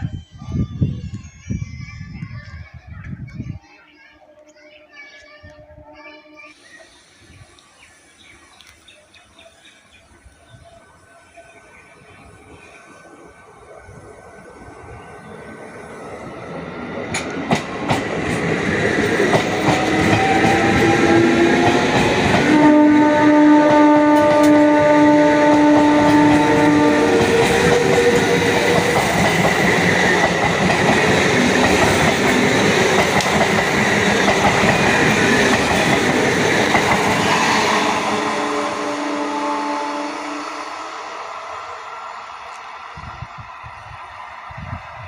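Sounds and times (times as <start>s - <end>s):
train rumbling with wheel clatter: 13.8s - 40.0s
train horn: 19.8s - 29.3s, 37.6s - 40.8s.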